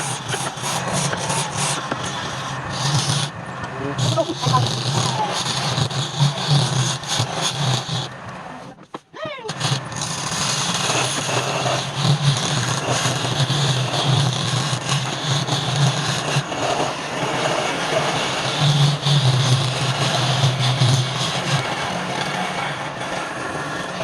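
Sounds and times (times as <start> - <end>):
tool hissing on spinning wood: 0.0 - 24.0
wood lathe running: 0.0 - 24.0.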